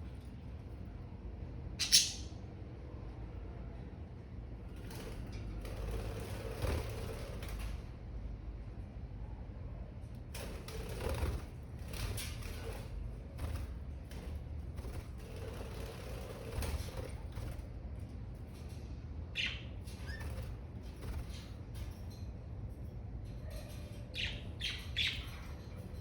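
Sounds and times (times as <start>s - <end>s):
steady low hum: 0.0s - 26.0s
bird chirp: 1.8s - 2.4s, 19.3s - 20.3s, 23.8s - 25.8s
birds scratching and clicking: 4.8s - 7.9s, 10.2s - 26.0s.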